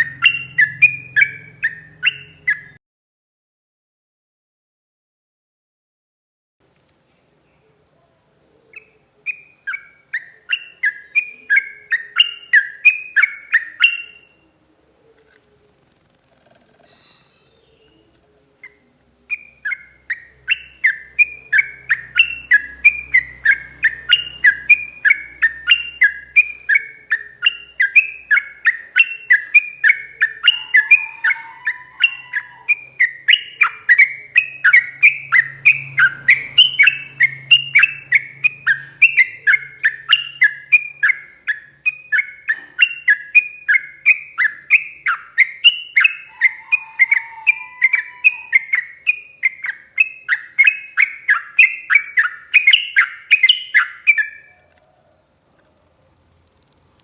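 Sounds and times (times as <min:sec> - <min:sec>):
bulbul singing rapid chattering notes: 0:00.0 - 0:02.8, 0:19.3 - 0:54.5.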